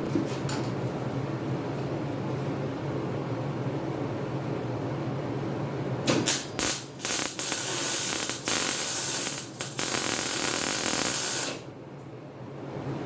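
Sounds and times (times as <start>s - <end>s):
welding arc hissing and crackling: 6.1s - 11.7s.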